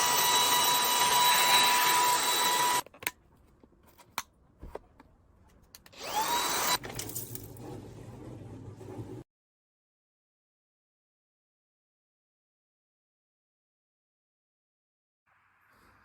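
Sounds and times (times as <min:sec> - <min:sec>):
vacuum cleaner motor whine: 0:00.0 - 0:02.8, 0:06.0 - 0:06.8.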